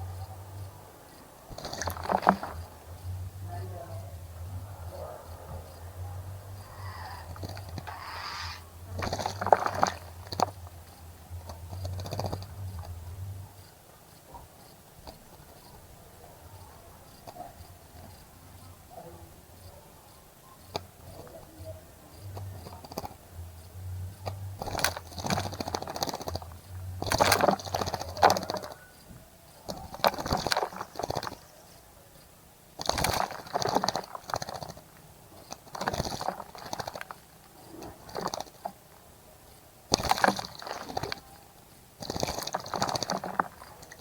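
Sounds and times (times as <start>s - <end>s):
bird splashing in water: 1.5s - 2.9s, 6.6s - 10.8s, 24.6s - 28.7s, 29.9s - 31.4s, 32.8s - 34.9s, 35.5s - 37.2s, 37.8s - 38.6s, 39.9s - 41.2s, 42.0s - 44.0s.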